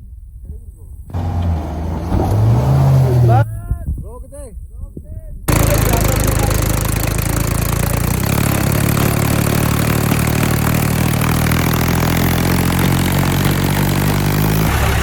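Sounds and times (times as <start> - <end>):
heavy vehicle engine running: 1.1 - 3.4, 5.5 - 15.0.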